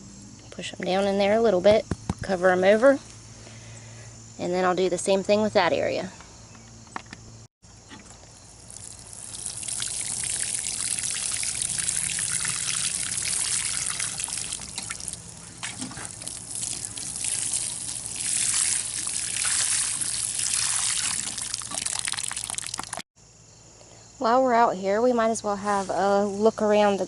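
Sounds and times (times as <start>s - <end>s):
water splattering onto soil: 8.2s - 23.0s.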